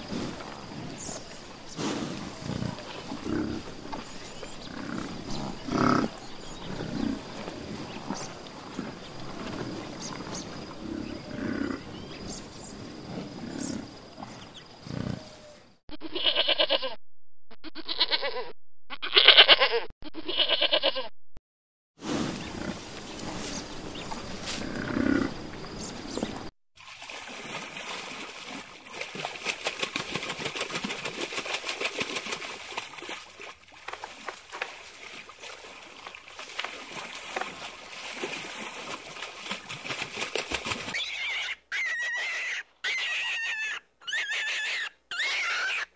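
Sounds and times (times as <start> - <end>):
animal bleating: 16.0 - 17.0, 17.7 - 21.1.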